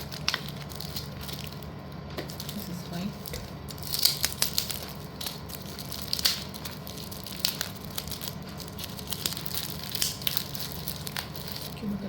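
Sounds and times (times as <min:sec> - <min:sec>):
crackly rustles: 0:00.0 - 0:12.0.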